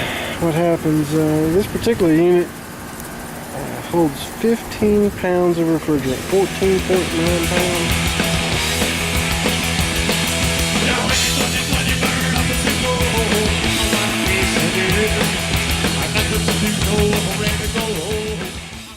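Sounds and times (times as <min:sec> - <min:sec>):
loud rock music: 0:06.0 - 0:18.9.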